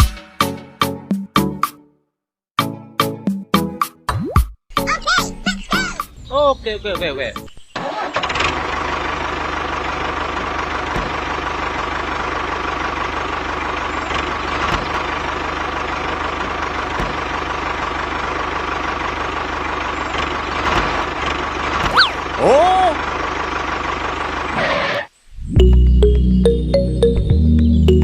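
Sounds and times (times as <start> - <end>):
engine idling: 7.8 - 25.0.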